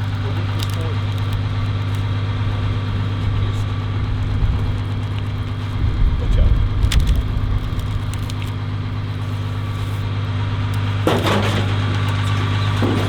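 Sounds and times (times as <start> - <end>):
skid steer engine running: 0.0 - 13.0
loud crash of debris dumped: 10.8 - 13.0.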